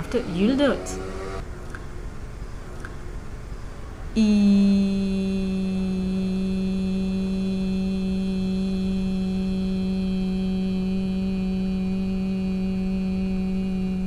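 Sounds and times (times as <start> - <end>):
person holding a vowel: 4.2 - 14.0.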